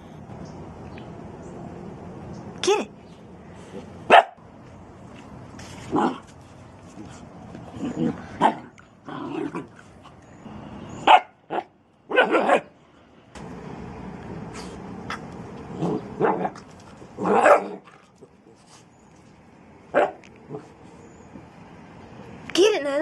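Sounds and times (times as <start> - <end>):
dog barking and yipping: 4.1 - 4.4, 11.0 - 12.7, 17.2 - 18.0, 19.9 - 20.2.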